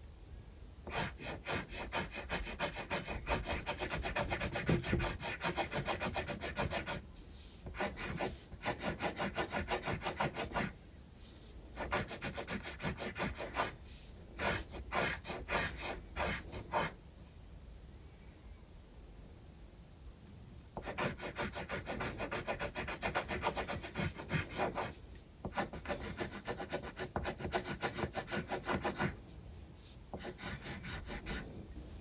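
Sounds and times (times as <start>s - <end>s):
pencil scratching on paper: 0.9s - 7.0s, 7.6s - 10.8s, 11.8s - 13.8s, 14.4s - 17.0s, 20.8s - 29.2s, 30.1s - 31.5s.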